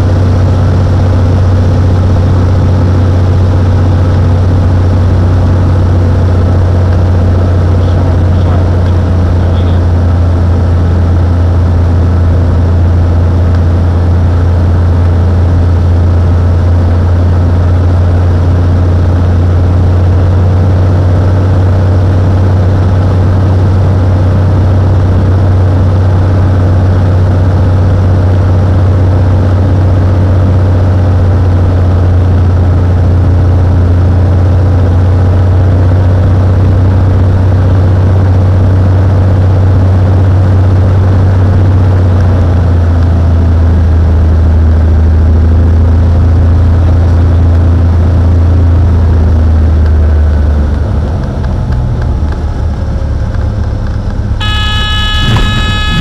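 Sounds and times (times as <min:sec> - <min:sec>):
propeller plane engine droning: 0:00.0 - 0:56.0.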